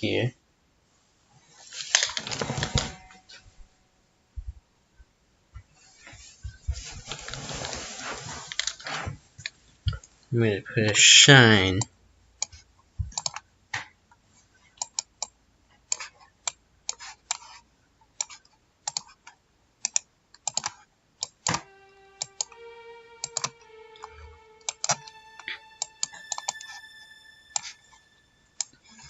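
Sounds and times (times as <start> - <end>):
keyboard and mouse clicks: 12.4 - 13.4, 14.8 - 17.6, 18.2 - 22.5
held synth notes: 21.5 - 29.0.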